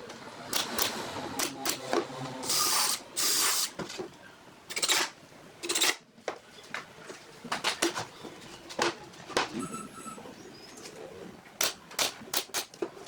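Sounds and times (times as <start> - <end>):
sharp clicks and knocks: 11.6 - 13.0.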